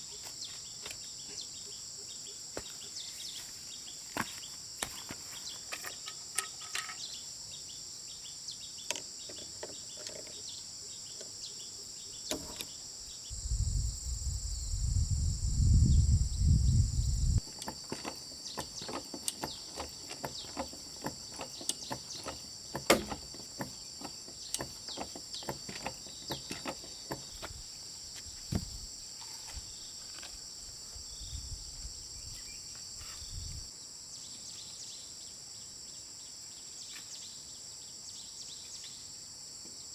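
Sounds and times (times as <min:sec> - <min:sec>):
high-pitched insect chorus: 0:00.0 - 0:39.9
light clicks and knocks: 0:17.4 - 0:27.6.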